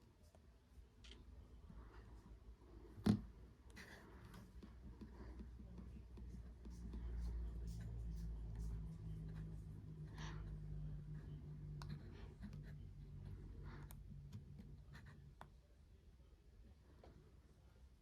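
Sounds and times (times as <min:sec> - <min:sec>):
low steady hum: 0:00.0 - 0:18.0
faint scratching: 0:03.7 - 0:15.6.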